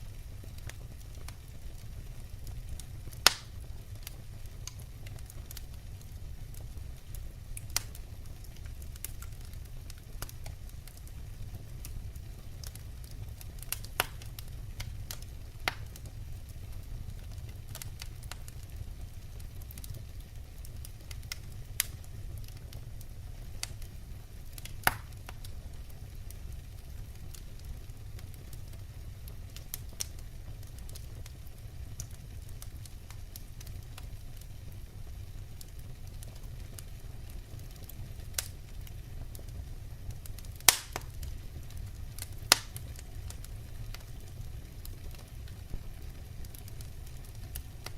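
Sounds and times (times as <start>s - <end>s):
firewood crackling: 0.0s - 47.9s
sharp pops of fire: 0.5s - 18.8s, 24.5s - 25.5s, 35.6s - 47.9s.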